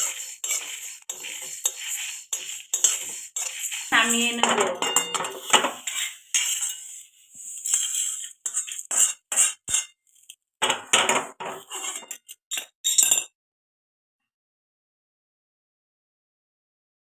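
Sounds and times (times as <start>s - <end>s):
metal utensil scraping a pan: 0.0s - 13.2s.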